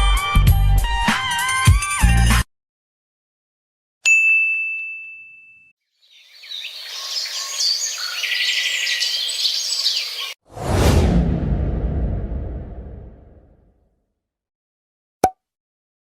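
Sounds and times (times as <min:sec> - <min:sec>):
bright ding: 0:04.1 - 0:05.7
birds chirping and trilling: 0:05.9 - 0:10.4
loud rushing boom: 0:10.5 - 0:13.7.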